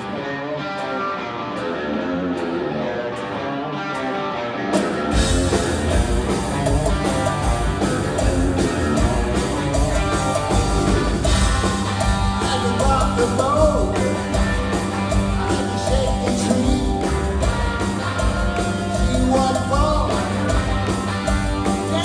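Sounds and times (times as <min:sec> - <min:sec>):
rock music with guitar: 0:00.0 - 0:22.0
bass and drums: 0:04.7 - 0:22.0.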